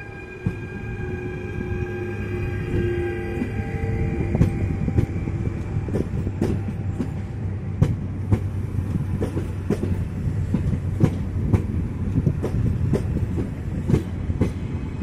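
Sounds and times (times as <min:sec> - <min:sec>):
train rumbling past: 0:00.0 - 0:15.0
wheels clicking over rail joints: 0:04.4 - 0:14.7.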